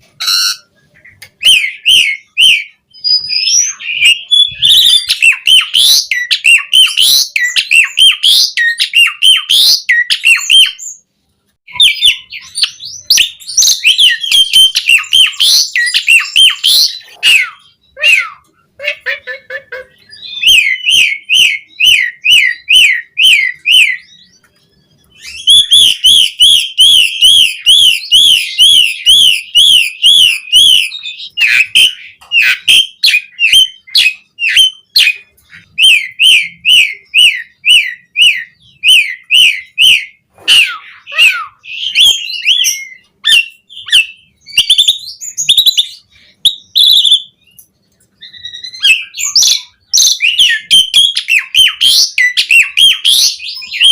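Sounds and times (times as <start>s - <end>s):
starling singing: 0.0s - 11.0s, 11.6s - 53.9s.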